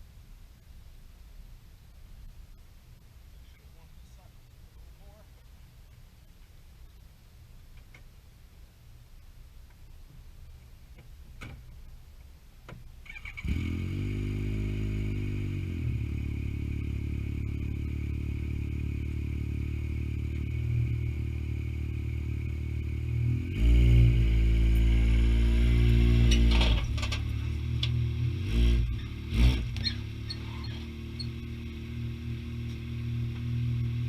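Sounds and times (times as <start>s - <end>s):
vehicle engine starting and running: 13.0s - 34.0s.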